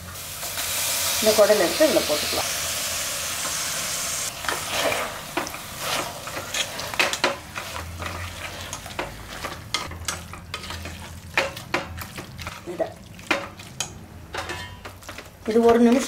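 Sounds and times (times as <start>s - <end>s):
food sizzling in hot oil: 0.0s - 11.5s
ladle scraping and knocking pot: 4.4s - 12.6s, 13.2s - 16.0s.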